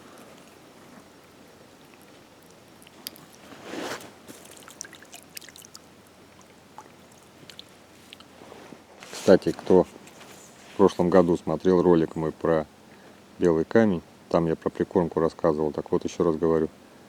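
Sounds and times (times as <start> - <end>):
river water flowing: 4.4 - 8.3.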